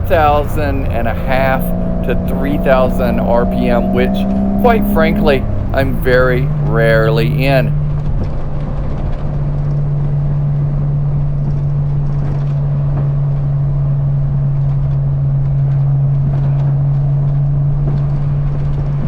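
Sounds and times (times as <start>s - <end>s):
car exhaust droning: 0.0s - 8.7s.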